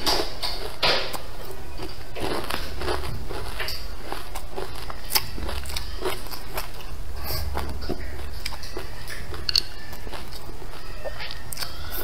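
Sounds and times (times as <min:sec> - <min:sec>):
person biting and chewing: 0:00.0 - 0:12.0
steady low hum: 0:00.0 - 0:12.0.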